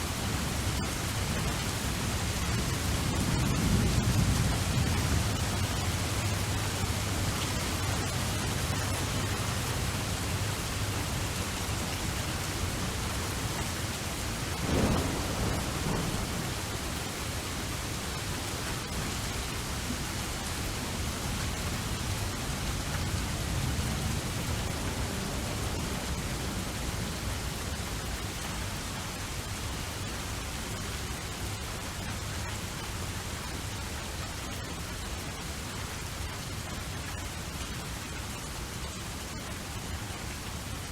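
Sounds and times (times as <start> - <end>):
rain falling: 0.0 - 40.9
thunder rumble: 0.5 - 19.9.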